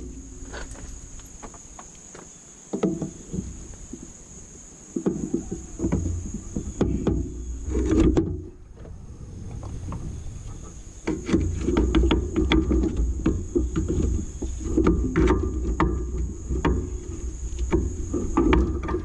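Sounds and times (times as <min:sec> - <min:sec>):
low rumble: 0:08.4 - 0:11.0.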